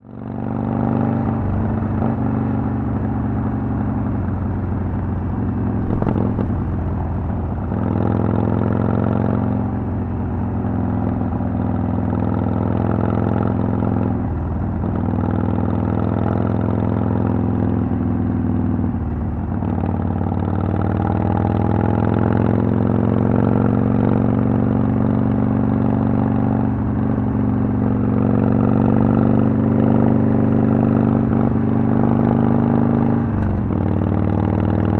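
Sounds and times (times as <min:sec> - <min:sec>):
motorcycle engine revving: 0:04.7 - 0:10.0.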